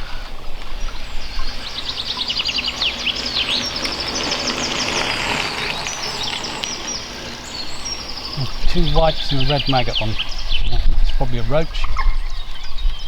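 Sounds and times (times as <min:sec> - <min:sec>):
outdoor hiss: 0:00.0 - 0:11.8
songbird chirping and trilling: 0:00.0 - 0:13.0.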